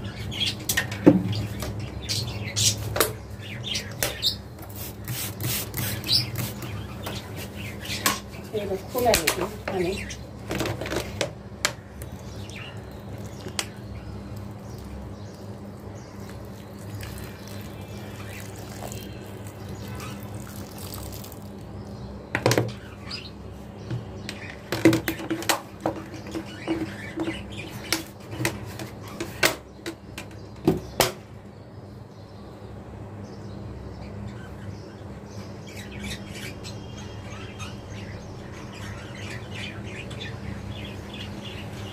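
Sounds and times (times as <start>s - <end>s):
budgerigars chirping and squawking: 0.0s - 10.3s, 17.0s - 20.4s, 22.7s - 23.4s, 26.0s - 28.1s, 34.0s - 41.9s.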